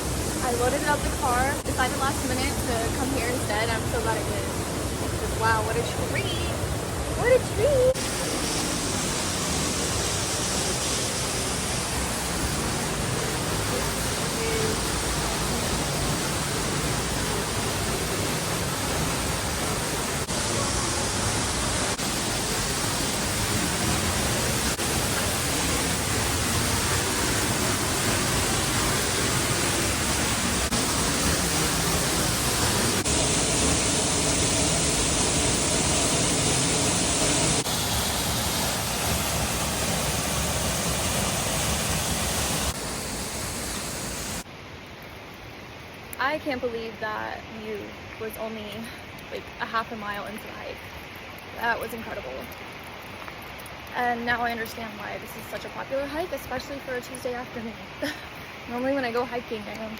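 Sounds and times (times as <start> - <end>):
waterfall rushing: 0.0 - 44.5.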